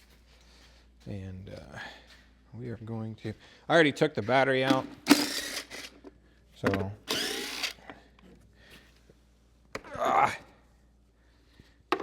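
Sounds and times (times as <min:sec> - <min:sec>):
impact wrench bursts: 0:04.7 - 0:06.0, 0:07.1 - 0:07.8.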